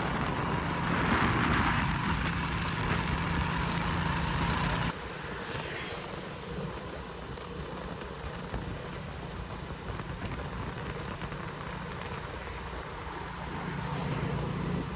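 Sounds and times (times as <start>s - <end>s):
motorcycle engine running: 0.0s - 5.1s.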